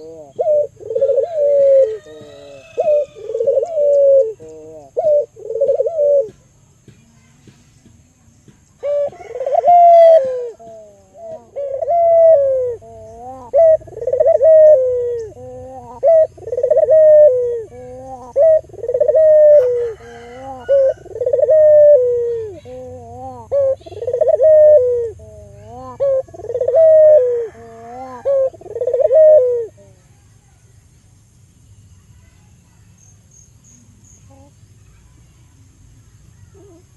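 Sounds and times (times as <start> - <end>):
dove cooing: 0.0 - 6.5, 8.8 - 30.1.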